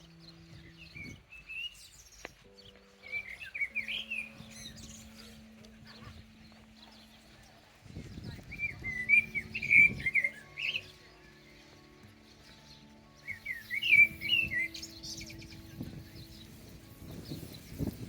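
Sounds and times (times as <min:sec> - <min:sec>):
songbird warbling: 0:00.0 - 0:17.9
soft background music: 0:00.0 - 0:18.0.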